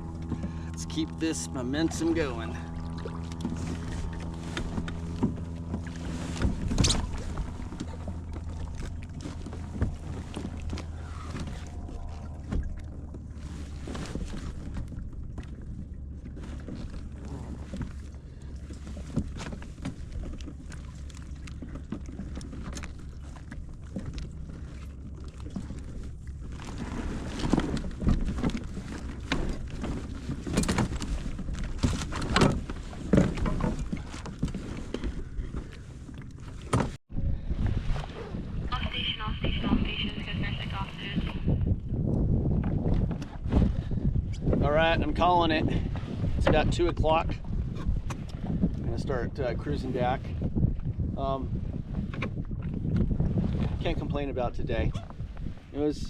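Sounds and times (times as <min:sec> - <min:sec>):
wind on microphone: 0:00.0 - 0:20.7, 0:21.3 - 0:56.0
gear knocking on boat: 0:00.0 - 0:37.0
low steady hum: 0:00.0 - 0:42.6
water sloshing against hull: 0:00.0 - 0:56.0.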